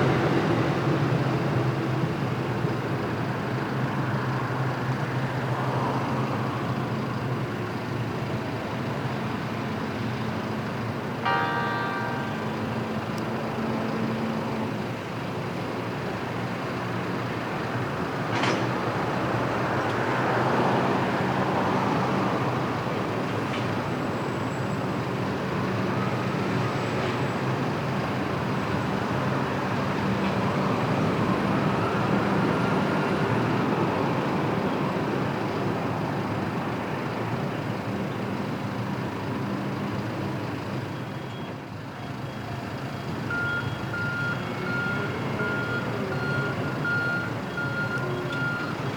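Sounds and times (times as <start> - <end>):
train clanks: 11.2 - 14.8, 18.2 - 19.0.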